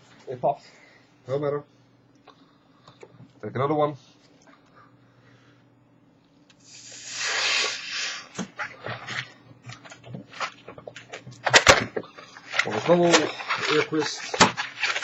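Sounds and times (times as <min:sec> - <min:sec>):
air hissing into a balloon: 0:06.6 - 0:08.4
balloon squeaking and crackling: 0:06.7 - 0:09.1.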